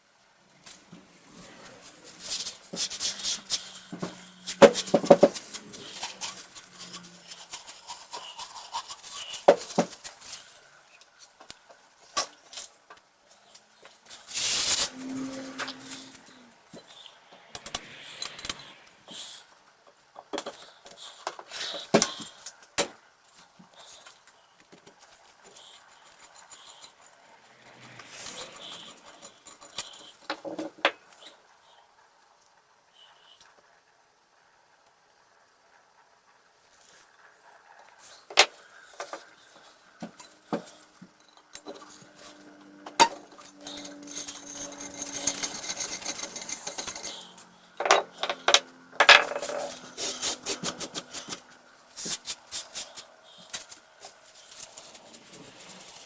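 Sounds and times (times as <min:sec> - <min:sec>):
metal scraping: 0:00.6 - 0:10.6, 0:14.0 - 0:19.5, 0:25.7 - 0:30.7, 0:39.0 - 0:56.0
small metal parts clinking: 0:01.4 - 0:08.4, 0:25.8 - 0:30.8, 0:40.0 - 0:51.4.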